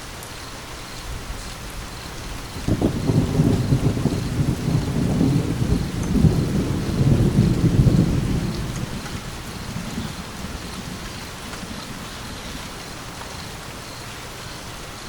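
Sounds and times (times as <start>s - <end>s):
steady rain hiss: 0.0s - 15.0s
rolling thunder: 1.8s - 13.8s.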